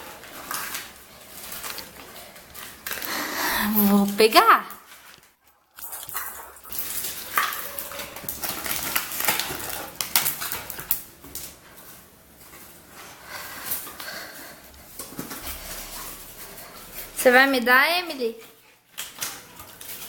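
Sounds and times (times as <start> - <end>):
dog playing with toy: 0.0 - 11.1.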